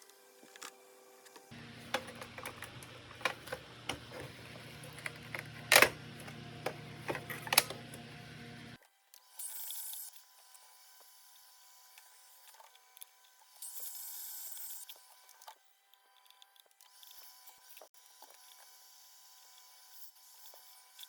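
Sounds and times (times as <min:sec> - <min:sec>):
low electrical hum: 0:01.5 - 0:08.8
plastic parts clicking and knocking: 0:01.6 - 0:08.6.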